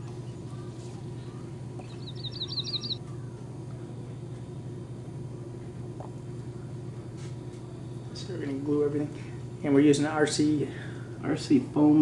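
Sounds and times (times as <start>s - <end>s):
steady low hum: 0.0s - 12.0s
small bird chirping: 0.1s - 3.4s.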